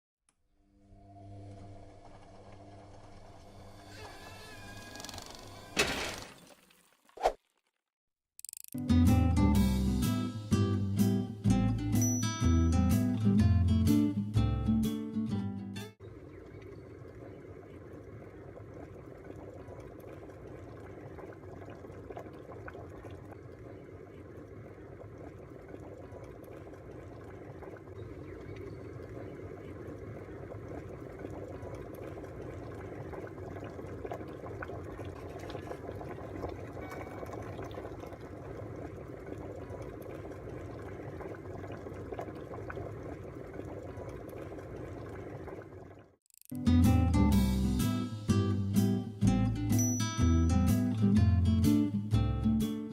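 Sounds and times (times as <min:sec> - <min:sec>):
kettle water bubbling: 0:16.0 - 0:46.2.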